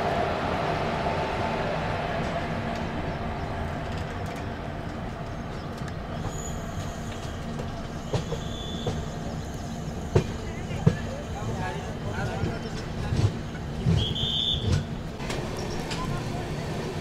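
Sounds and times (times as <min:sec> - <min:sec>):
passenger train rumble and hum: 0:00.0 - 0:17.0
faint high squeal: 0:08.0 - 0:09.7.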